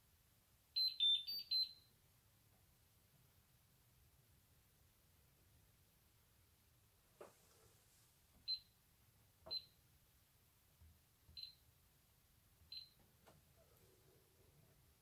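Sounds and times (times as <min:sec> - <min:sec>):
short high electronic beeps: 0:00.8 - 0:01.8.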